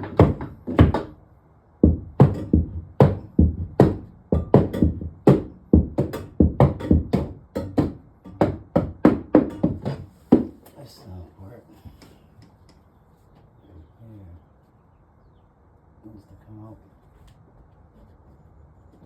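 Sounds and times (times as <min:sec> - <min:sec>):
knocking strikes on drywall: 0:00.0 - 0:01.2, 0:01.8 - 0:10.6.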